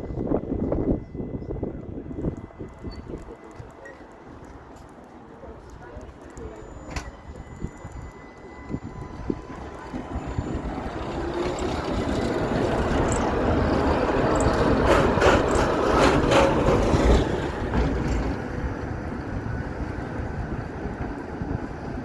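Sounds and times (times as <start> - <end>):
tram motors and wheels on rails: 0.0 - 22.0.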